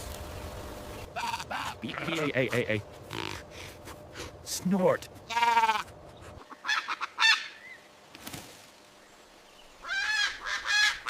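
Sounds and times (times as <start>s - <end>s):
fowl calling: 1.1s - 3.6s, 5.3s - 7.8s, 9.8s - 11.0s.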